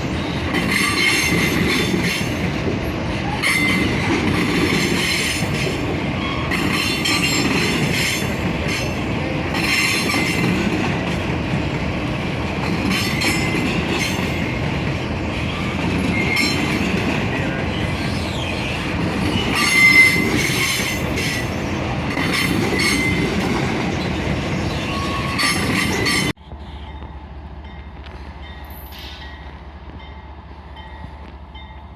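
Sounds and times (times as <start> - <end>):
train wheels rumbling on rail: 0.0 - 31.9
clacks over rail joints: 0.5 - 26.4
wheels squealing: 15.3 - 26.4.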